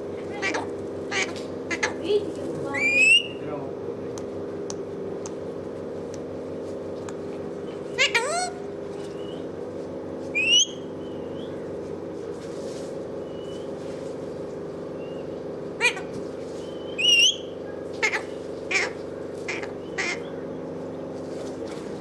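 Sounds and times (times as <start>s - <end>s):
steady machine hum: 0.0s - 22.0s
parrot squawking: 0.3s - 3.4s, 7.9s - 8.6s, 10.4s - 10.8s, 15.8s - 16.2s, 16.9s - 20.3s.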